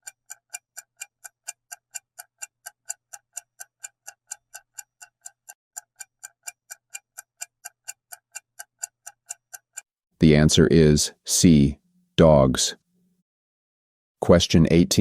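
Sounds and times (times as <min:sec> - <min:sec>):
clock ticking timer: 0:00.0 - 0:09.9.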